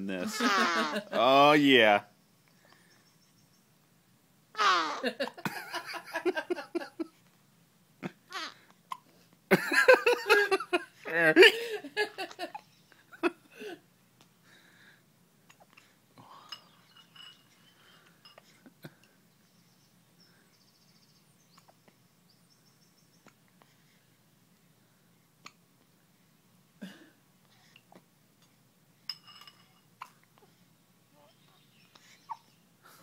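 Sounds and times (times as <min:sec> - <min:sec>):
baby squeaky straining noises: 0:04.6 - 0:05.0.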